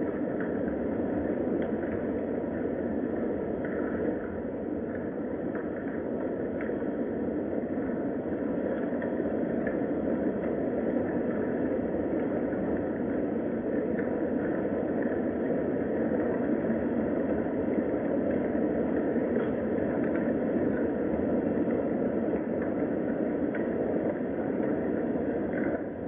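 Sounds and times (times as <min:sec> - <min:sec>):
raindrop ticks: 0:03.2 - 0:07.0, 0:08.6 - 0:09.8, 0:18.3 - 0:25.9.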